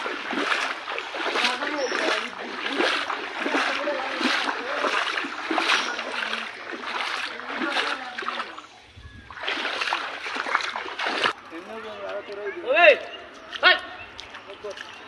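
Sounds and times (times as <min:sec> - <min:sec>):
floodwater splashing: 0:00.0 - 0:11.8
faint voices: 0:00.8 - 0:10.4.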